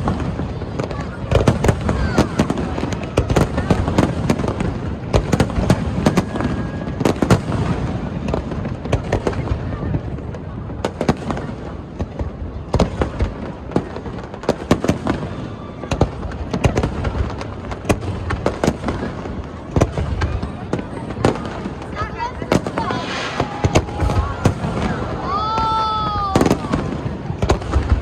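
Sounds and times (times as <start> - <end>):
fireworks bangs and crackles: 0.0 - 28.0
distant booms rumbling: 22.5 - 25.8.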